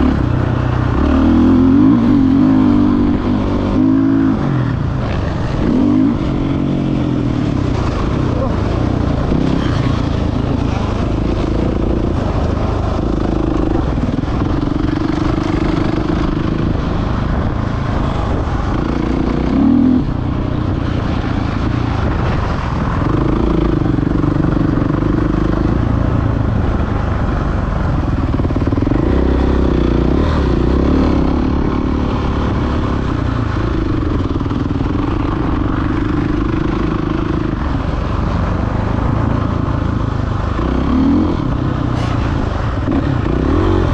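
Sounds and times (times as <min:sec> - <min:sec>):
dirt bike engine revving: 0:00.0 - 0:20.4, 0:28.3 - 0:33.0, 0:40.3 - 0:43.9
clatter and rough ride noise: 0:00.0 - 0:43.9.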